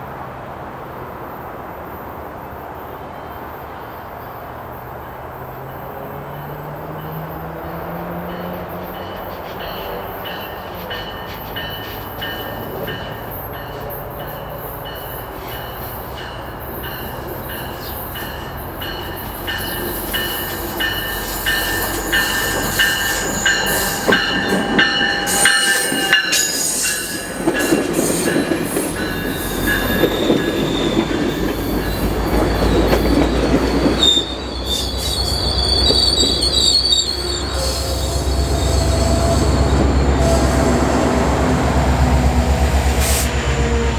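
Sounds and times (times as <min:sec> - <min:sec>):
train rumble and clatter: 0:00.0 - 0:43.9
train wheels and brakes squealing: 0:02.6 - 0:43.9.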